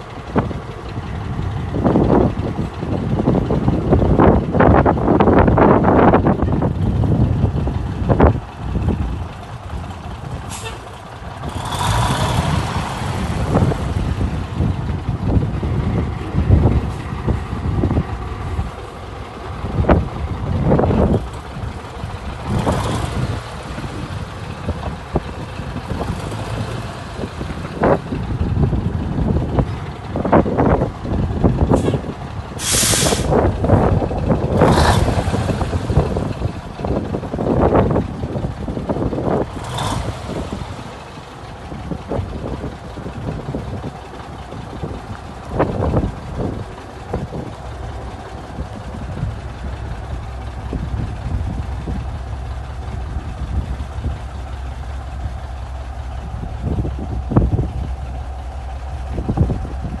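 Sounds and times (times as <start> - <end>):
diesel truck engine rumbling: 0.0 - 60.0
air brake hiss: 32.6 - 33.3.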